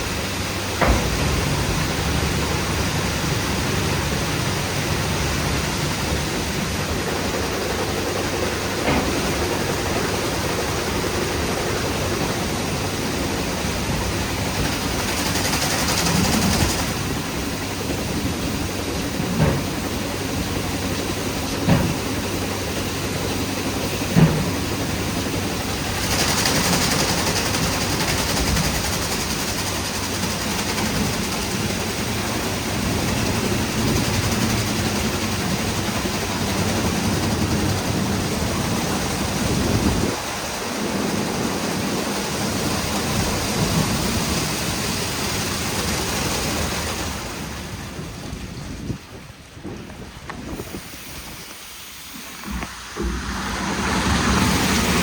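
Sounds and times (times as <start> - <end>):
mechanical rumble: 0.0 - 44.7, 46.1 - 55.0
car wash rotating brushes: 0.0 - 55.0
knocks: 0.8 - 2.2, 21.6 - 22.1, 24.1 - 24.7
water spray hiss: 50.2 - 55.0.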